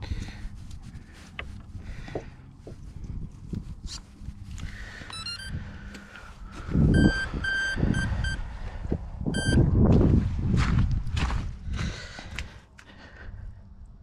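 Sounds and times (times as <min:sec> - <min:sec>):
electronic beeps: 0:05.1 - 0:05.6, 0:06.9 - 0:08.4, 0:09.3 - 0:09.6.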